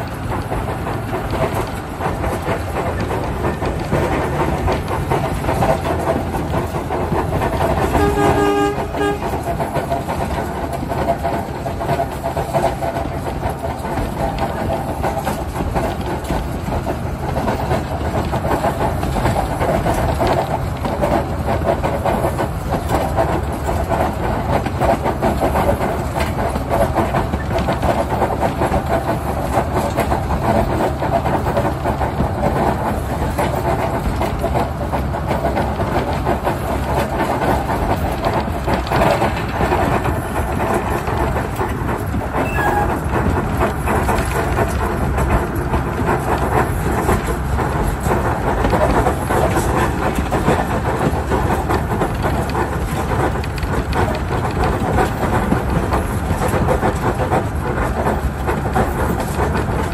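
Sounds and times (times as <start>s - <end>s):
train rumbling: 0.0s - 59.9s
wheels clattering over rail joints: 0.0s - 59.9s.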